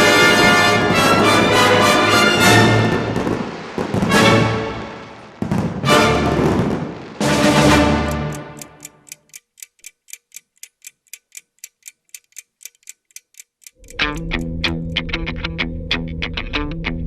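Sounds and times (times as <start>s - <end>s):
orchestral hit: 0.0s - 3.2s, 4.0s - 5.0s, 5.8s - 6.6s, 7.2s - 8.6s
clock ticking: 7.3s - 15.0s
distorted electric guitar music: 13.8s - 17.0s.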